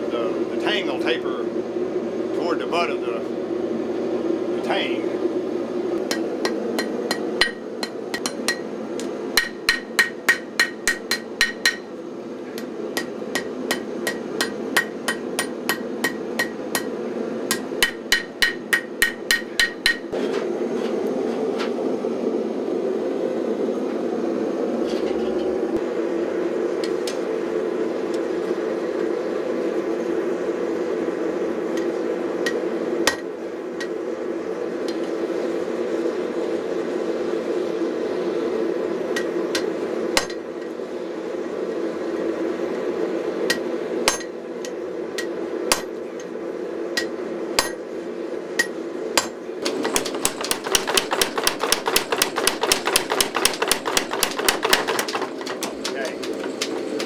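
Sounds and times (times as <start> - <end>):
shop equipment drone: 0.0 - 57.0
hammer striking steel on anvil: 6.1 - 8.7, 9.4 - 11.9, 12.6 - 16.9, 17.5 - 20.2, 43.5 - 44.3, 45.2 - 45.9, 47.0 - 47.8, 48.6 - 49.4.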